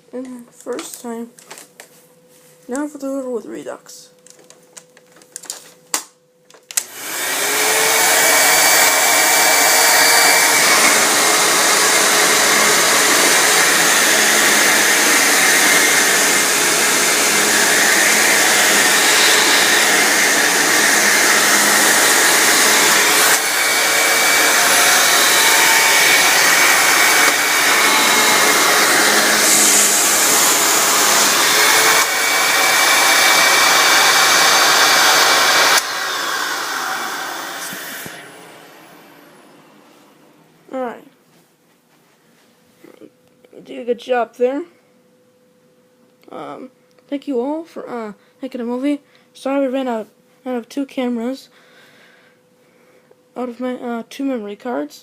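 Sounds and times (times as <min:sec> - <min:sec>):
vacuum cleaner motor whining: 0:06.7 - 0:40.5.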